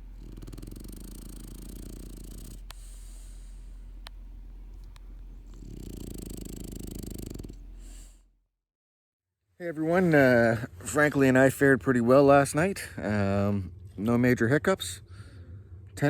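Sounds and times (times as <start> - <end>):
rattling snores: 0.0 - 8.3
steady low hum: 0.0 - 8.5, 9.6 - 16.0
sharp ticks: 0.3 - 3.4.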